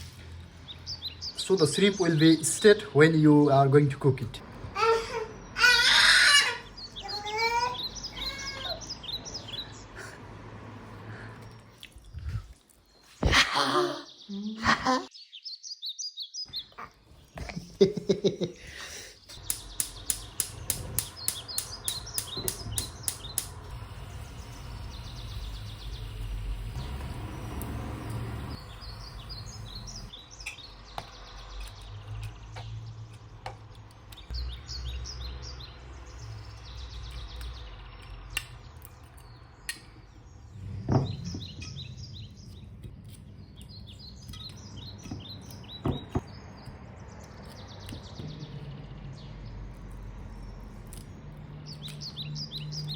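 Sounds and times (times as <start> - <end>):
small birds chirping: 0.0 - 52.9
sharp clicks: 19.4 - 25.8
low steady rumble: 19.8 - 30.2.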